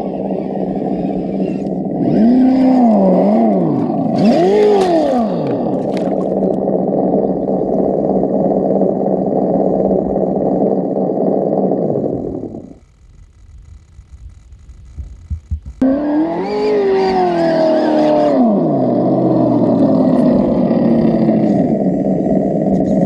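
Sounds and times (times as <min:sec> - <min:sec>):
toy truck motor revving: 0:00.0 - 0:06.5, 0:15.8 - 0:22.4.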